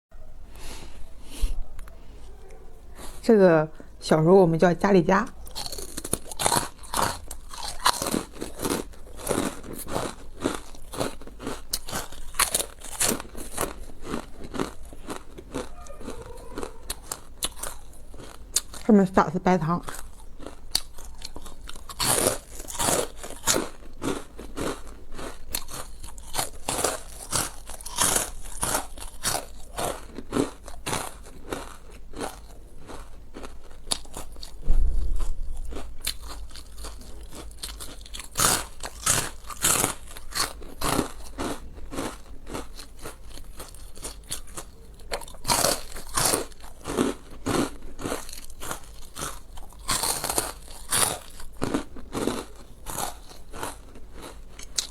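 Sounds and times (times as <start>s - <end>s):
crunching and chewing crisp food: 2.4s - 3.3s, 4.8s - 54.9s
dull thump: 34.6s - 35.5s.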